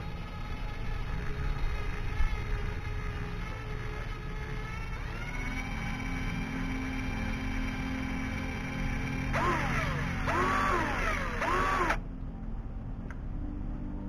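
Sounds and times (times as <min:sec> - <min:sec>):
cordless drill boring into plastic: 0:00.0 - 0:12.0.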